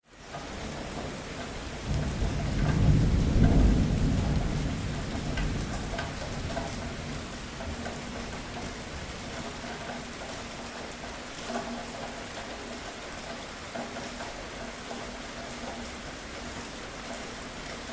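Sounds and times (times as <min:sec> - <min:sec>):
rain pattering: 0:00.1 - 0:17.9
thunder rumble: 0:01.8 - 0:09.2.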